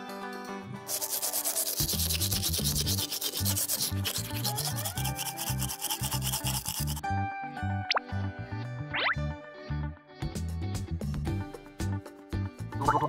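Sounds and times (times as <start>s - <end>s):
fast rhythmic scraping: 0.9s - 7.0s
cartoon background music: 0.9s - 13.0s.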